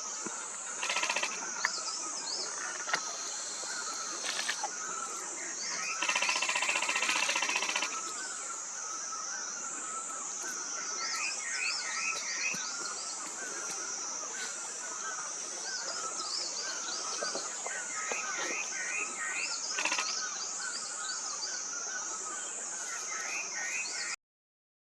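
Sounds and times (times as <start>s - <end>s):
birds chirping: 0.0s - 24.2s.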